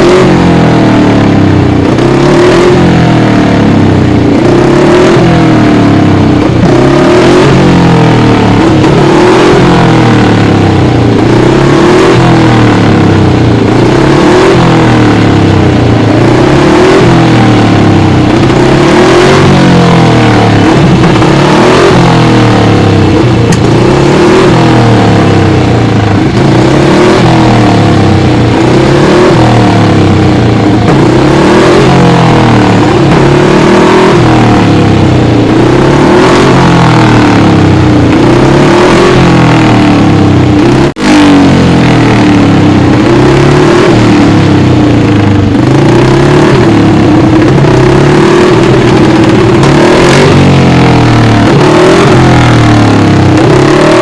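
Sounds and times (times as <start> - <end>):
racing engine revving: 0.0 - 54.0.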